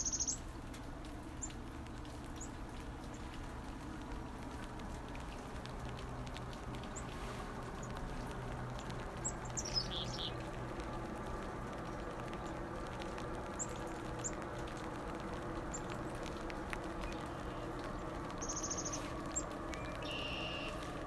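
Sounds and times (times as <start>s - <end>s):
chickadees chirping: 0.0s - 0.4s, 9.2s - 10.4s, 17.0s - 21.0s.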